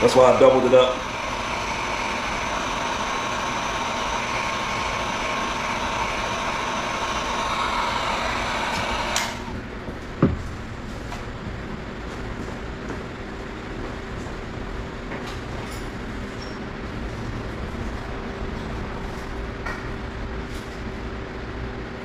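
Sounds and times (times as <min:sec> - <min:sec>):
hot-air blower running: 0:00.0 - 0:15.5.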